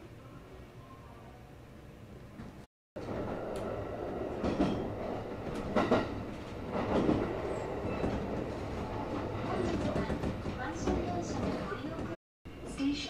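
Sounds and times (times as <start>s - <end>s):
train wheels rumbling on rail: 2.5s - 12.2s
wheels clacking over rail joints: 3.0s - 12.2s.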